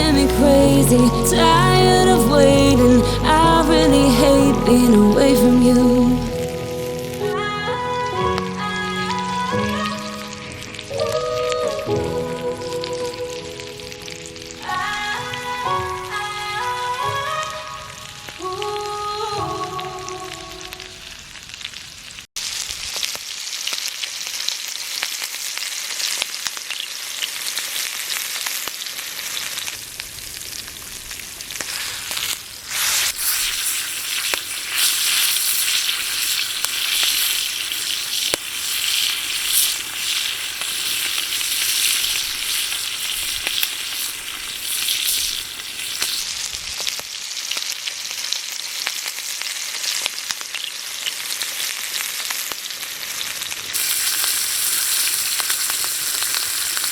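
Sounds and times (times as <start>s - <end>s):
steak sizzling on a griddle: 22.4s - 56.9s
scattered pops: 32.8s - 46.2s.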